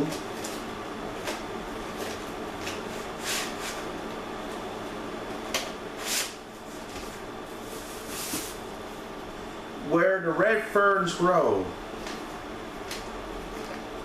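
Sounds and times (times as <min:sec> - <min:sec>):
low background hum: 0:00.0 - 0:14.0
tape cases scuffing and sliding: 0:06.0 - 0:08.6.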